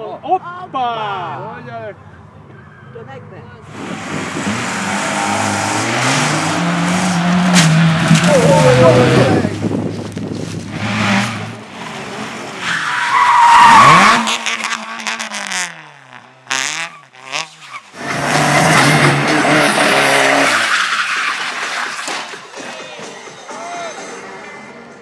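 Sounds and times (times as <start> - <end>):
tyres squealing and skidding: 3.7 - 9.5, 10.7 - 15.1, 16.8 - 24.4.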